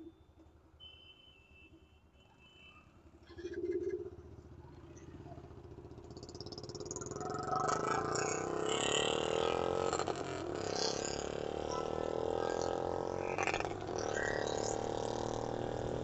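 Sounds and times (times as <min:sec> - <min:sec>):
motorcycle engine accelerating: 0:05.6 - 0:16.0.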